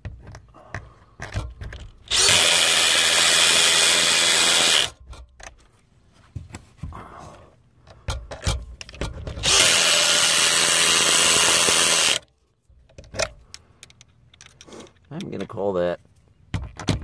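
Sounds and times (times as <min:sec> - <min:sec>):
handling knocks and clicks: 0:00.0 - 0:02.1, 0:07.8 - 0:09.5, 0:12.7 - 0:17.0
power drill running: 0:02.1 - 0:05.0, 0:09.4 - 0:12.2.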